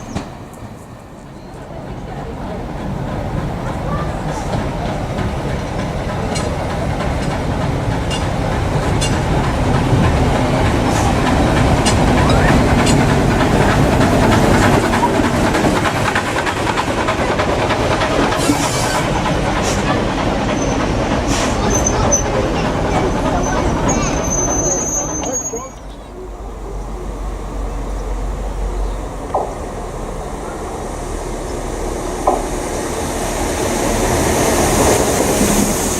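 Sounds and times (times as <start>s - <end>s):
train passing: 0.0s - 35.9s
wheels clicking over rail joints: 1.8s - 26.0s.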